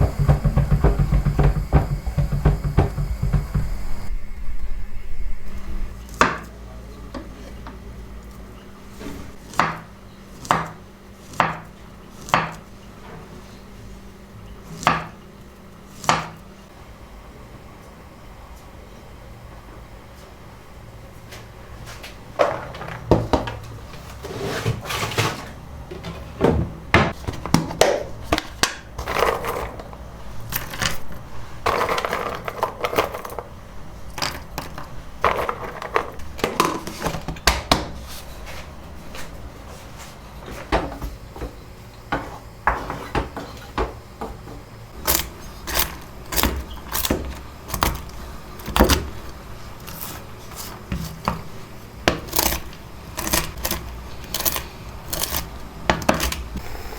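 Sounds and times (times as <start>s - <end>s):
clicks and knocks: 0.0s - 4.1s.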